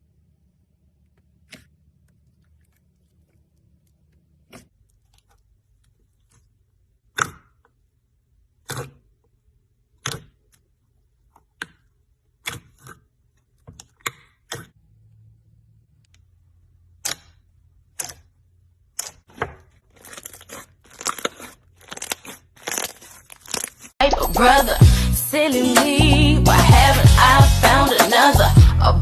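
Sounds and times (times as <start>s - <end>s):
faint low hum: 0.0s - 7.0s.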